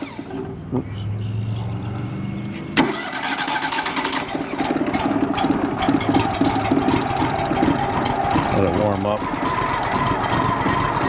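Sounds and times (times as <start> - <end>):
sawmill engine running unevenly: 2.8 - 11.0.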